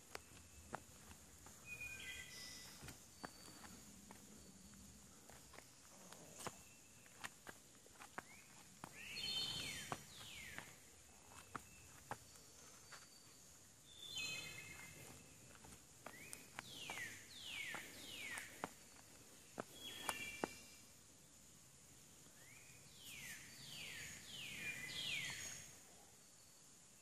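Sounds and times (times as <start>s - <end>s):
footsteps on log bark: 0.0s - 13.1s, 14.3s - 20.6s
birds calling: 0.0s - 20.9s, 22.3s - 25.8s.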